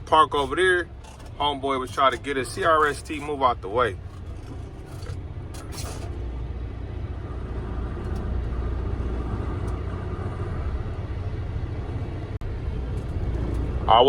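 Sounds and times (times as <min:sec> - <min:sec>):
diesel truck engine rumbling: 0:00.0 - 0:14.0.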